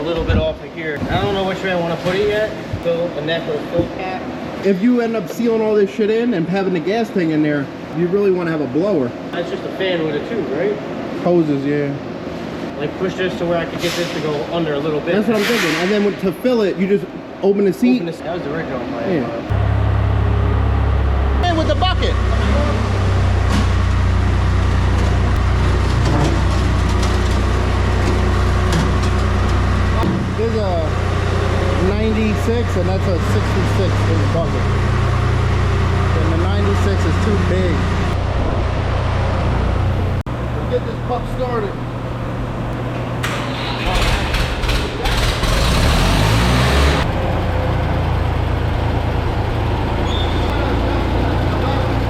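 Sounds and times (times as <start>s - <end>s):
skid steer engine drone: 19.5s - 52.0s.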